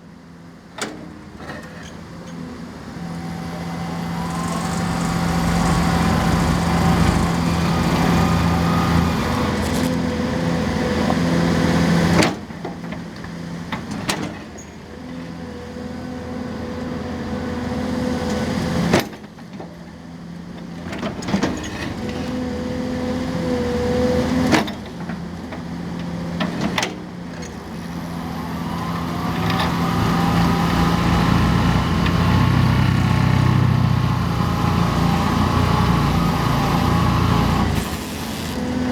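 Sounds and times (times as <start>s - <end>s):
excavator engine and hydraulics: 0.0s - 38.9s
steady hydraulic whine: 1.4s - 11.2s, 27.4s - 38.9s.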